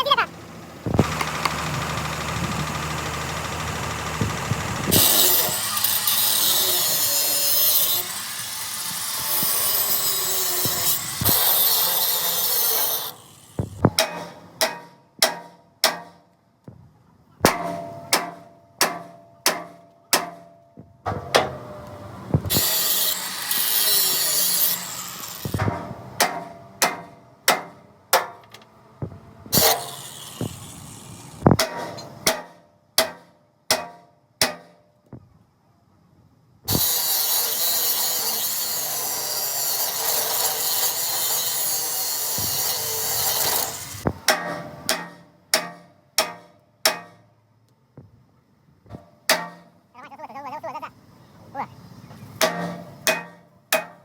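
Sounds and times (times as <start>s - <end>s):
harsh rasping tool noise: 4.2s - 13.8s, 22.4s - 25.7s, 29.5s - 31.6s, 36.7s - 44.1s
hammer striking steel: 12.9s - 16.3s, 17.4s - 20.5s, 24.4s - 28.5s, 31.5s - 34.8s, 42.4s - 47.3s, 49.3s - 49.7s, 52.4s - 54.0s.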